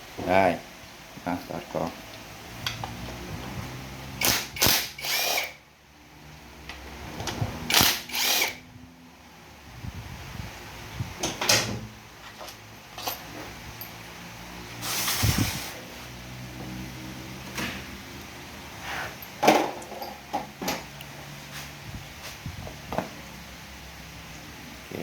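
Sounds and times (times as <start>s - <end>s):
power tool undoing bolts: 4.2s - 5.6s, 7.2s - 8.6s.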